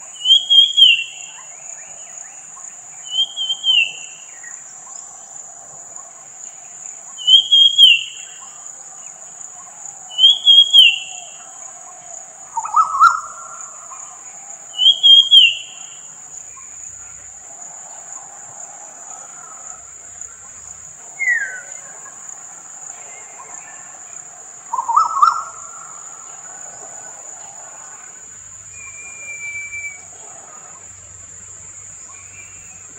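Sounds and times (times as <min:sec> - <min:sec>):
high insect trill: 0:00.0 - 0:32.9
lower louder bird call: 0:00.1 - 0:04.9, 0:07.1 - 0:08.6, 0:09.6 - 0:20.5, 0:21.1 - 0:22.3, 0:22.9 - 0:31.1
bird giving falling calls: 0:24.7 - 0:26.4.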